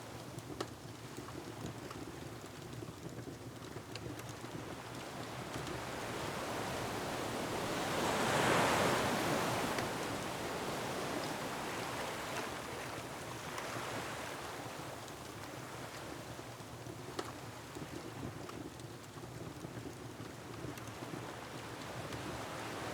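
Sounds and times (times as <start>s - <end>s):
faint wood fire crackling: 0.0s - 22.9s
ocean wave: 5.9s - 14.5s.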